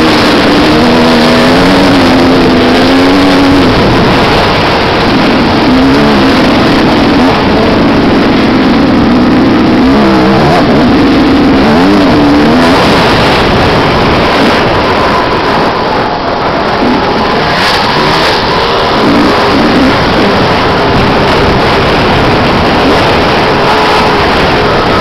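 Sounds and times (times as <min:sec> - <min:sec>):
motocross motorcycle engine revving: 0:00.0 - 0:25.0.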